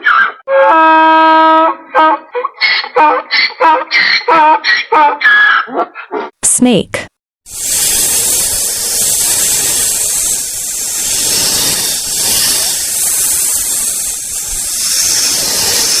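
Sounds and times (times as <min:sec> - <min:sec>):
snake hissing: 0:07.5 - 0:16.0.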